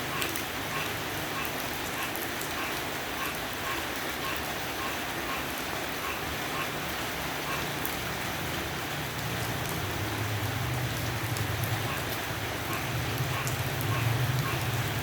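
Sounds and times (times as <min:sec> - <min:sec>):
light rain pattering: 0:00.0 - 0:15.0.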